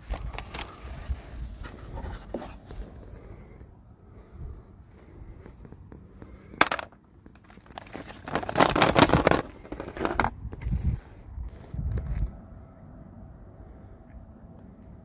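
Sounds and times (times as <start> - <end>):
packaging crackling and crinkling: 0.0 - 1.2, 6.6 - 10.3.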